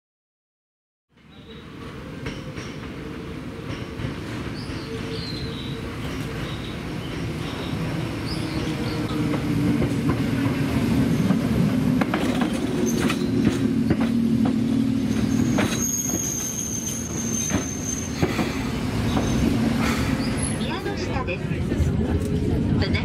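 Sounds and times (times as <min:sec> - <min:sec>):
high wheel squeal: 0:15.1 - 0:20.7.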